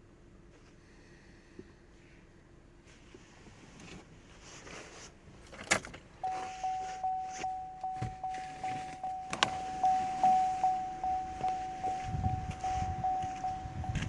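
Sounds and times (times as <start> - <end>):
car warning chime dinging: 6.2 - 14.0.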